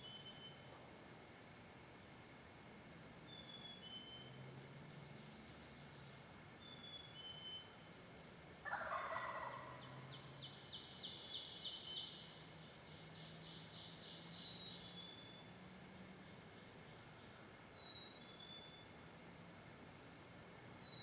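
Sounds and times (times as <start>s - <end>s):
turkey gobbling: 8.6s - 10.0s.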